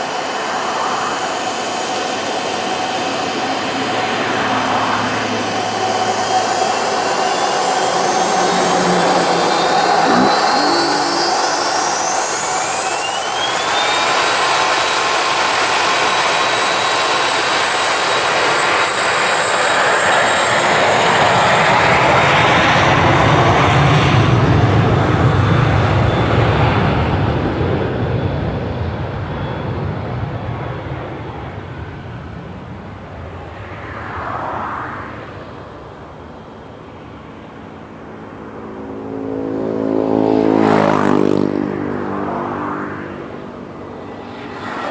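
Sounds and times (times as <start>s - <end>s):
loud jet roar: 0.0s - 36.1s, 39.2s - 44.9s
jet engine whine: 0.0s - 44.9s.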